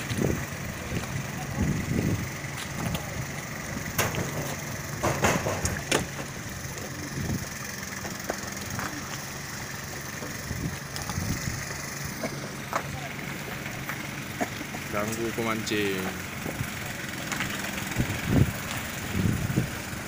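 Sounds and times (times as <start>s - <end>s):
engine idling: 0.0s - 20.0s
sharp knocks: 3.9s - 6.2s.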